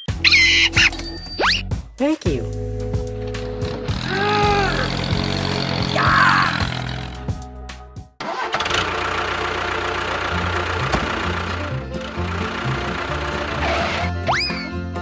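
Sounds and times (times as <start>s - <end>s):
background music: 0.0s - 15.0s
engine running: 2.5s - 7.6s, 8.2s - 14.3s.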